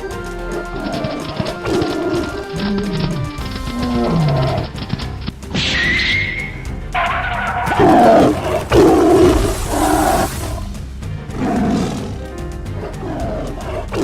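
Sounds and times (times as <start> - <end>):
background music: 0.0 - 14.0
big cat roaring: 0.5 - 4.8, 7.7 - 10.6, 11.3 - 12.2, 12.8 - 14.0.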